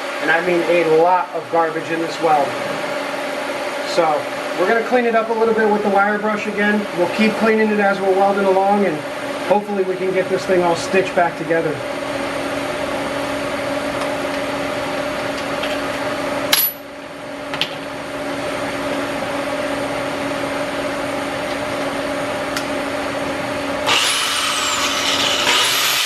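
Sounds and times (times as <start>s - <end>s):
welding arc buzzing: 23.8s - 26.0s.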